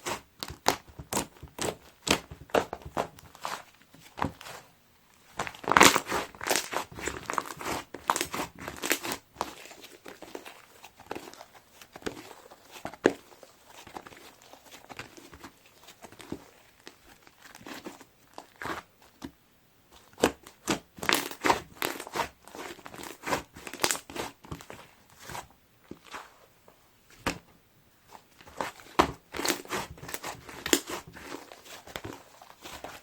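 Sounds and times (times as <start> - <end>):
bead slime crunching and crackling: 5.2 - 18.9, 20.0 - 25.4, 28.4 - 33.0.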